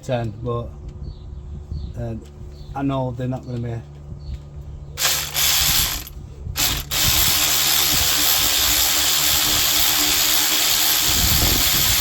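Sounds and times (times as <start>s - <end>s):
power tool undoing bolts: 5.0s - 12.0s.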